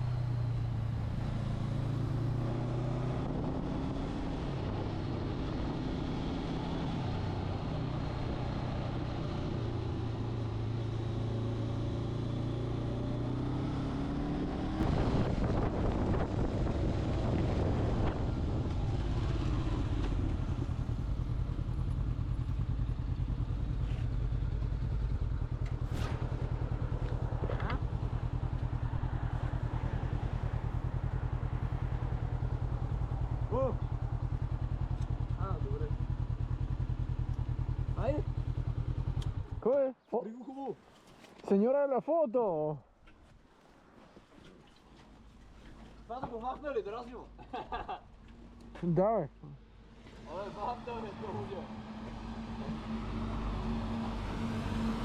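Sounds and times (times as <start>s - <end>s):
motorcycle engine running: 3.1s - 39.6s.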